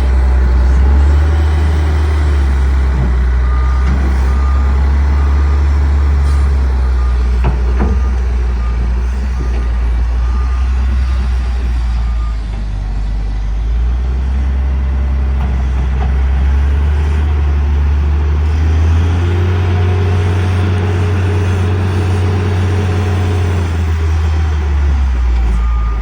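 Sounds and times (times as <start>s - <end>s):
diesel engine under load: 0.0s - 26.0s
reversing alarm beep: 1.4s - 12.7s, 22.8s - 26.0s.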